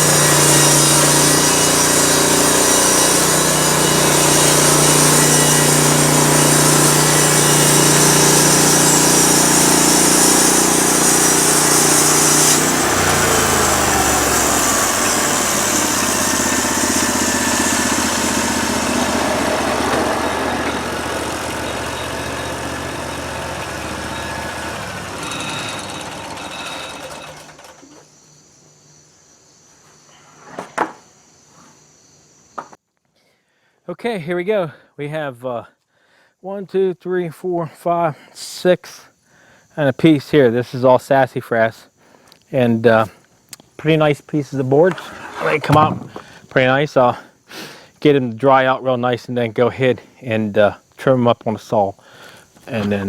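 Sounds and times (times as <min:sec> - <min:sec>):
sawmill gas engine running: 0:00.0 - 0:28.0, 0:52.2 - 0:53.0
sharp knocks: 0:45.6 - 0:46.3.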